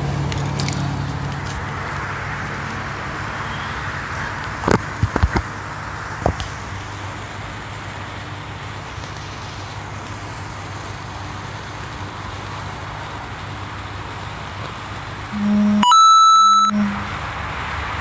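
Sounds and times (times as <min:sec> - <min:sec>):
sparklers fizzing: 0:00.1 - 0:15.7
sparkler pops: 0:06.2 - 0:15.3.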